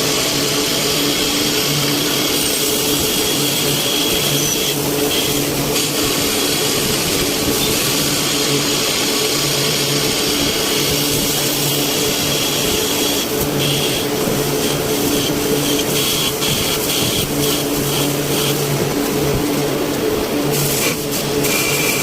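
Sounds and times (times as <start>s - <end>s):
machine mechanical hiss: 20.4s - 22.0s.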